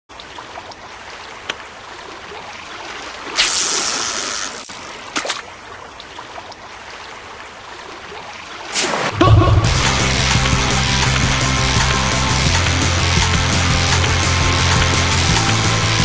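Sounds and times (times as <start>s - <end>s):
sea water washing and lapping: 0.1s - 16.0s
sharp clicks: 9.7s - 16.0s.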